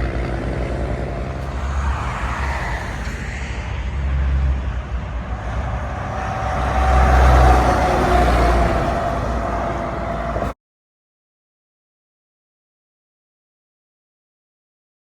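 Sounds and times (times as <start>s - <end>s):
truck passing with engine rumble: 0.0s - 10.6s.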